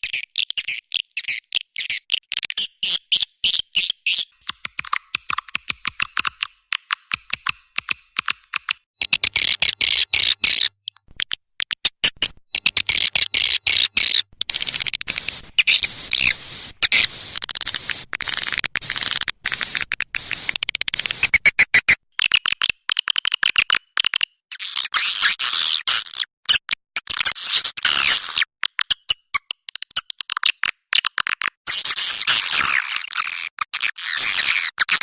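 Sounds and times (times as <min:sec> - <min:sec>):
swiftlets chirping and twittering: 0:12.9 - 0:21.5.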